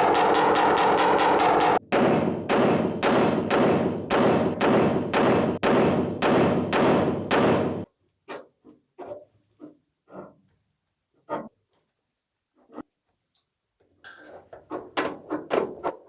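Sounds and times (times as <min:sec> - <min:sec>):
hammer ringing on sheet metal: 0:00.0 - 0:07.9.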